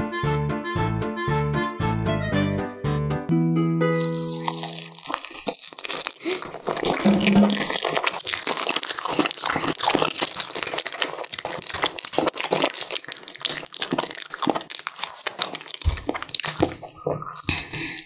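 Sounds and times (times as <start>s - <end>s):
close-up chewing and crunching: 4.0s - 18.0s.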